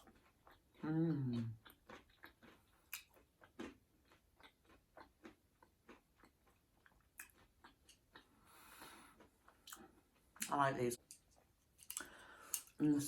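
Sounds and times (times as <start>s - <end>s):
person chewing: 0.0s - 12.8s
person humming: 0.8s - 1.6s.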